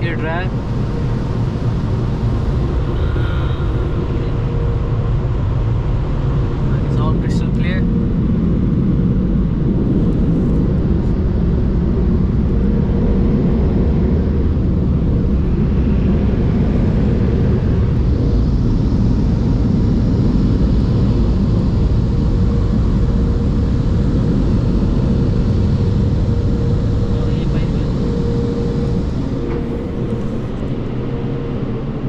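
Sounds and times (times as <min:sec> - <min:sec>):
air dryer blowers rushing: 0:23.6 - 0:31.0.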